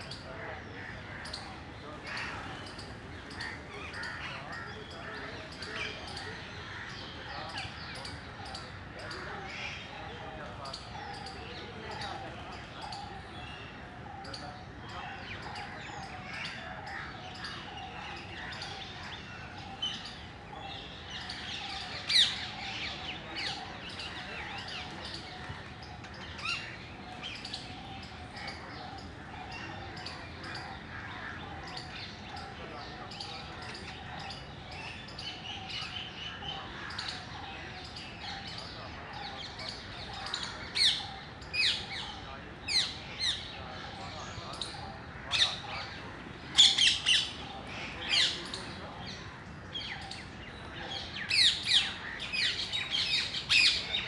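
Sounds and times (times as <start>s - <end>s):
parrots chirping and calling: 15.3s - 38.8s, 39.7s - 43.9s, 44.5s - 54.0s
parrots squawking: 45.3s - 48.8s.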